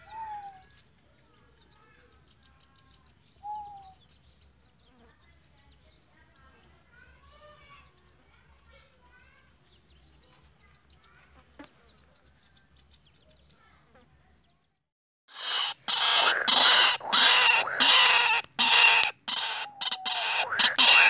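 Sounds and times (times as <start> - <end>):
faint bird chirps: 0.0 - 21.0
high ticks: 15.3 - 21.0
loud hissy noise: 15.3 - 21.0.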